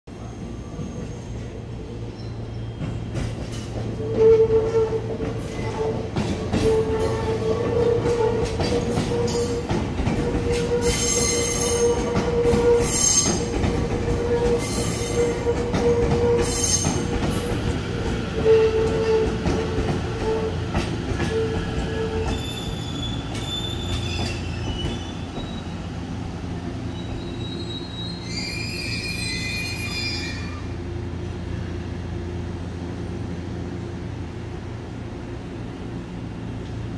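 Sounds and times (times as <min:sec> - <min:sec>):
train rumbling and humming: 0:00.1 - 0:36.9
high-pitched wheel squeals: 0:10.3 - 0:13.5, 0:14.3 - 0:17.1, 0:21.2 - 0:25.8, 0:26.9 - 0:30.7.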